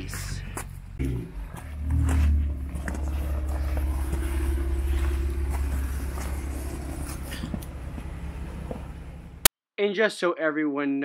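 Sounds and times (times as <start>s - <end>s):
car engine low rumble: 0.0s - 9.5s.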